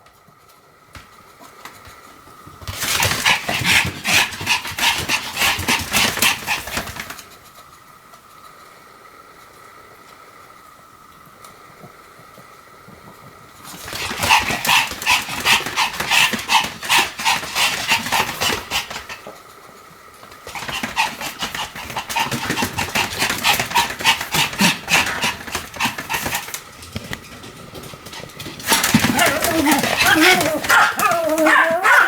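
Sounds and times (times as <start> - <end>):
small dog yapping: 28.6 - 32.0.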